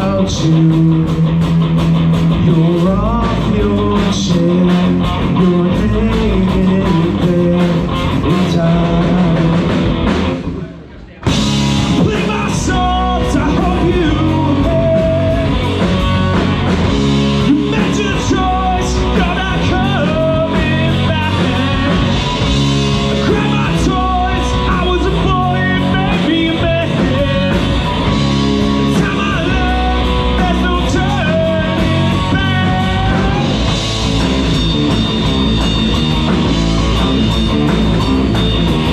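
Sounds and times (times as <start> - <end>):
bass guitar: 0.0 - 38.9
drums: 0.0 - 38.9
electric guitar: 0.0 - 38.9
person singing: 2.4 - 9.8, 11.8 - 16.5, 17.4 - 22.4, 23.1 - 34.9.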